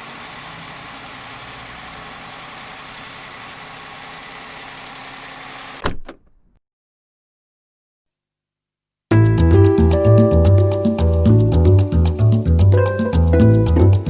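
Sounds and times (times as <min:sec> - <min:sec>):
car engine idling: 0:00.0 - 0:05.8.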